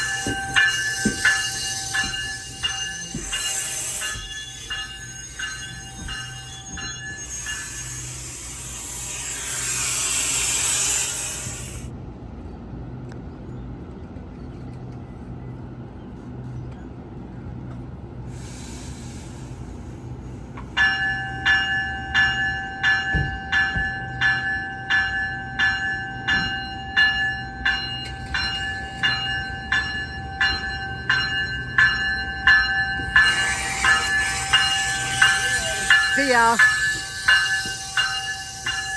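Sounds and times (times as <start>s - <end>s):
crossing warning bell ringing: 0.0s - 11.8s, 20.7s - 38.9s
train passing: 0.0s - 38.9s.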